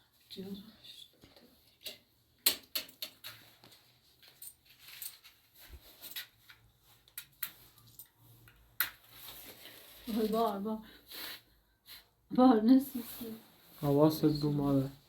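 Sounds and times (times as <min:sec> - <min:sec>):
small objects clicking and tapping: 0:01.2 - 0:05.3, 0:06.0 - 0:09.1.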